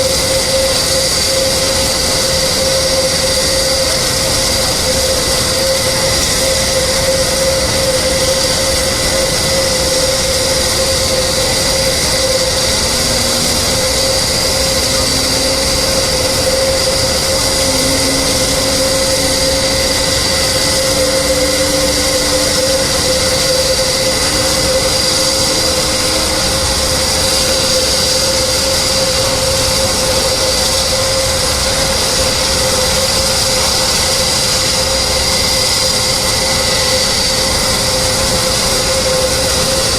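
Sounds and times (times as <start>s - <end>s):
jet engine running: 0.0s - 39.9s
faint rising tone: 12.6s - 27.8s.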